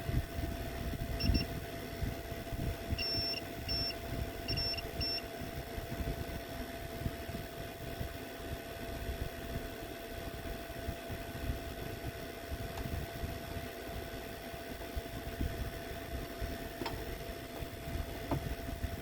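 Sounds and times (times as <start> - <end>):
high-pitched electronic beeps: 3.0 - 3.9, 4.5 - 5.2.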